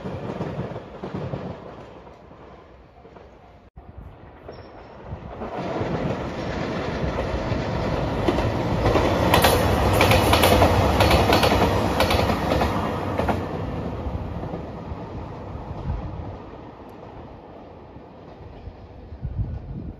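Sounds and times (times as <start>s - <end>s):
diesel train passing: 0.0s - 19.9s
wheels clacking over rail joints: 4.4s - 14.6s.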